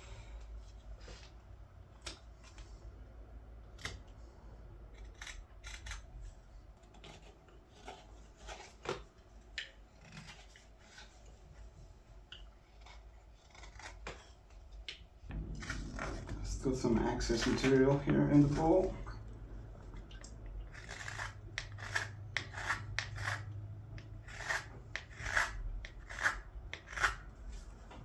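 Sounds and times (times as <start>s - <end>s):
knife slicing wood shavings: 20.8s - 23.5s.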